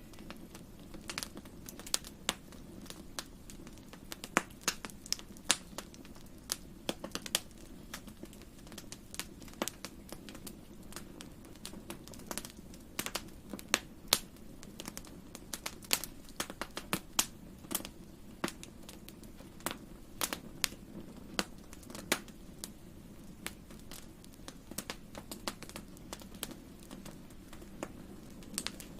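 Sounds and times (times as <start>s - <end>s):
low rumble of flames: 0.0s - 28.9s
wood fire pops and snaps: 0.0s - 28.9s.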